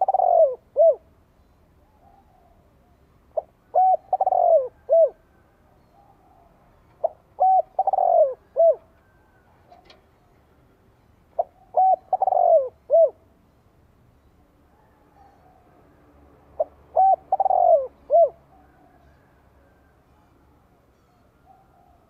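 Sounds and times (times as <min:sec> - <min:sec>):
dove cooing: 0:00.0 - 0:01.1, 0:01.8 - 0:10.4, 0:11.4 - 0:13.2, 0:16.6 - 0:19.8.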